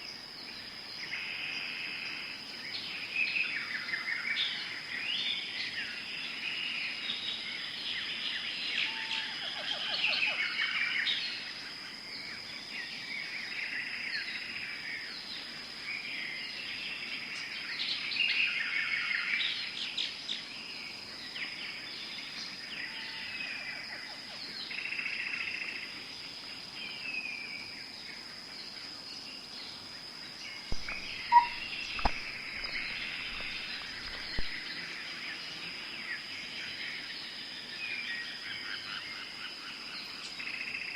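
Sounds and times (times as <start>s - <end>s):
birds chirping and trilling: 28.6s - 40.9s
high-pitched insect drone: 30.6s - 37.4s
sharp clicks: 30.7s - 34.6s.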